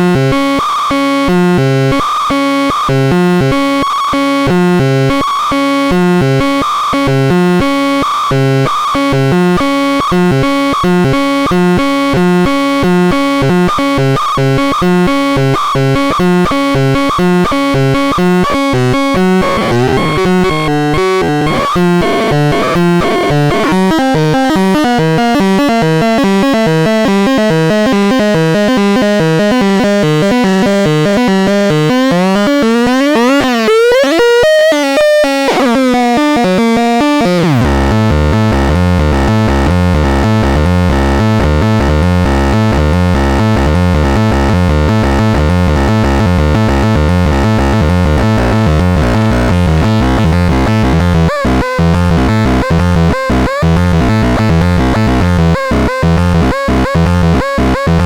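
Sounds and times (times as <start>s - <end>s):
synthesizer tones with pitch glides: 16.2s - 38.1s
pulsing synthesizer pattern: 16.3s - 38.6s.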